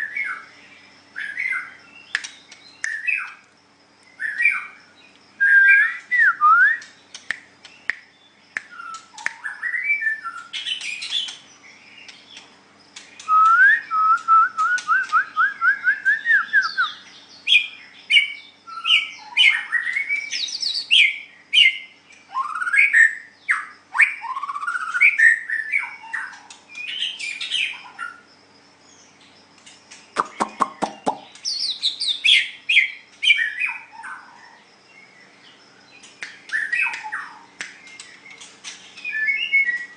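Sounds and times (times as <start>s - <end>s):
bird singing whistles and chatter: 5.4s - 12.4s, 13.0s - 28.2s, 35.9s - 39.9s.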